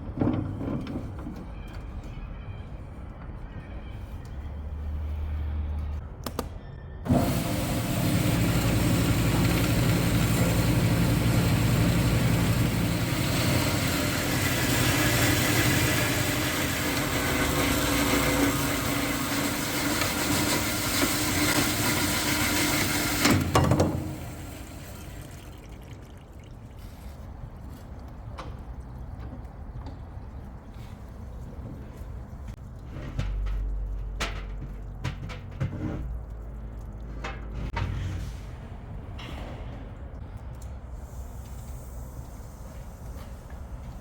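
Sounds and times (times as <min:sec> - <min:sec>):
power saw cutting steel: 0:07.1 - 0:25.0.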